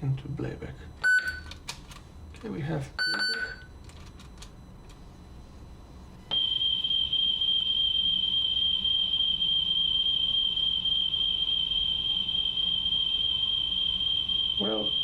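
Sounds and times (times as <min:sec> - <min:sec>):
steady test tone: 0:05.3 - 0:15.0.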